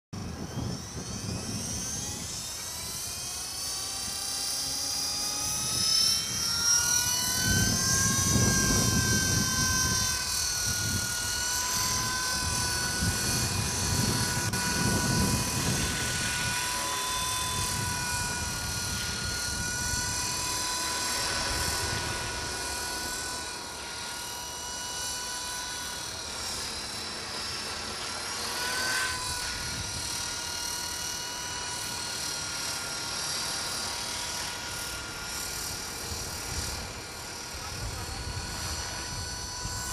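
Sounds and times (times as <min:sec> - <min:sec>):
model helicopter motor whine: 0:00.2 - 0:39.9.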